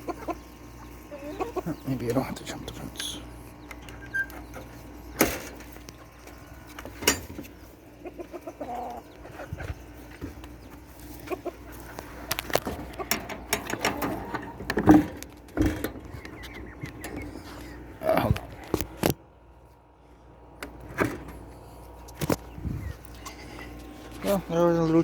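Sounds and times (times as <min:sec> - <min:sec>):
chickens clucking: 0:00.0 - 0:25.0
knocks and clatters: 0:12.3 - 0:17.2.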